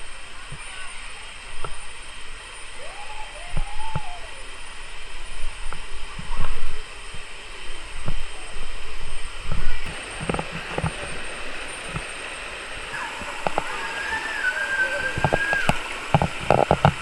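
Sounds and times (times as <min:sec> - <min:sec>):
low rumbling surges: 0:00.0 - 0:17.0
rushing river water: 0:00.0 - 0:17.0.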